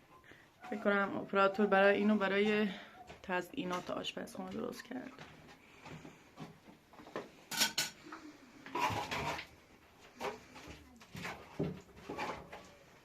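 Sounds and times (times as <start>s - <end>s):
dishes and utensils clinking: 7.5s - 8.0s.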